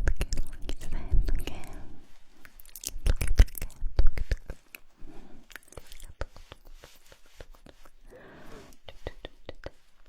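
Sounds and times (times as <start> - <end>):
wet lip and tongue clicks: 0.0 - 1.8, 2.4 - 4.9, 5.5 - 8.0.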